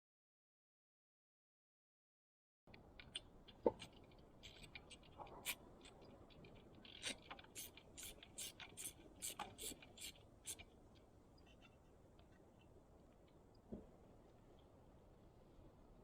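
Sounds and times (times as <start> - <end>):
light handling clicks and scrapes: 3.0 - 13.9.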